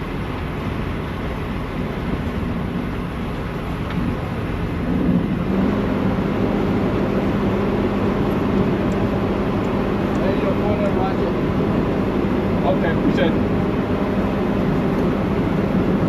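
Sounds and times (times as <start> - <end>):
engine low rumble: 0.0 - 16.0.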